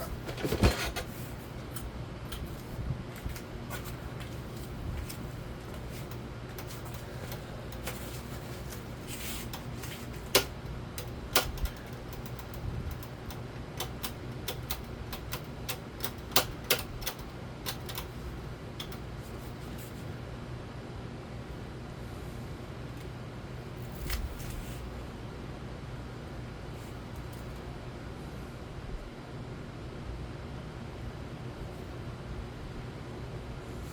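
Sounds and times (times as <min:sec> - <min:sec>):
ceiling fan humming: 0:00.0 - 0:33.9.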